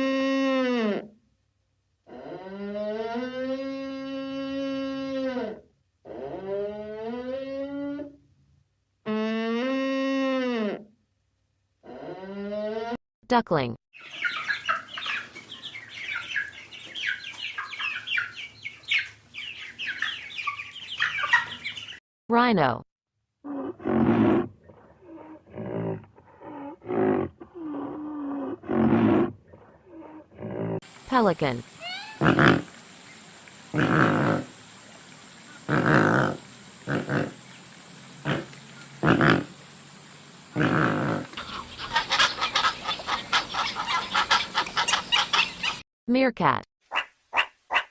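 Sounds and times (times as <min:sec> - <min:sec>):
ducklings peeping: 0:14.0 - 0:22.0, 0:41.3 - 0:45.8
pelican harsh calls: 0:41.4 - 0:45.8.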